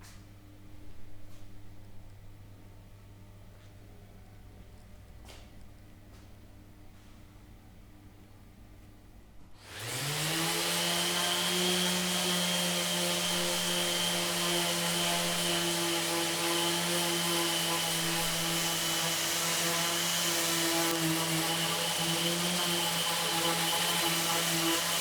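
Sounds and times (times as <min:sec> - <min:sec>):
electric power tool motor whine: 0:09.6 - 0:25.0.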